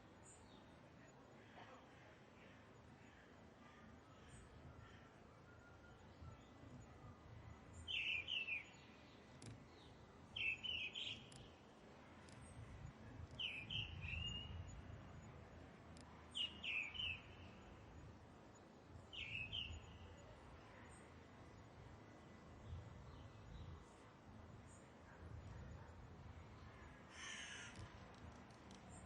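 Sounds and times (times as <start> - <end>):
faint low background noise: 0.0 - 29.0
bird chirping: 7.7 - 11.6, 13.3 - 14.8, 16.3 - 18.1, 19.0 - 20.3.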